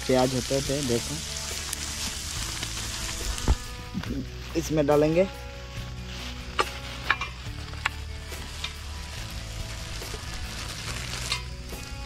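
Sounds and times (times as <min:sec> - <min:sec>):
plastic bag crinkling: 0:00.0 - 0:03.9, 0:06.0 - 0:12.0
onions sizzling in hot oil: 0:00.0 - 0:04.5, 0:06.1 - 0:12.0.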